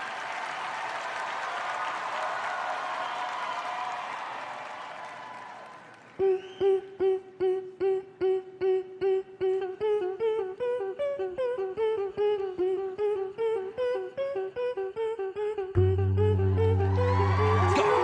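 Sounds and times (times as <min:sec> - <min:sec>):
higher vocal line: 0:06.2 - 0:18.0.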